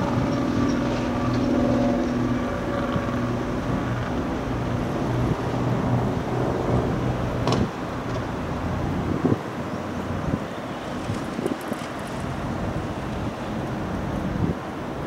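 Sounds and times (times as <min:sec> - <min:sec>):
large engine running: 0:00.0 - 0:07.0.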